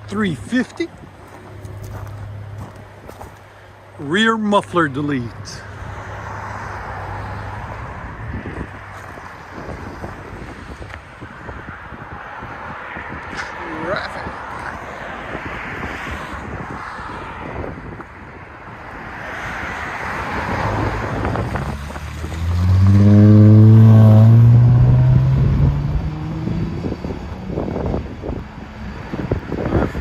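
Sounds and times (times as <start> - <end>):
car exhaust accelerating: 19.8 - 30.0.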